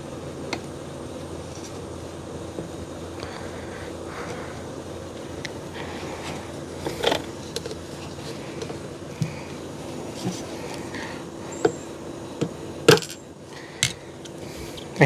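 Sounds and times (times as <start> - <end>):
steady low hum: 0.0 - 15.0
small clicks and handling noises: 6.8 - 13.2.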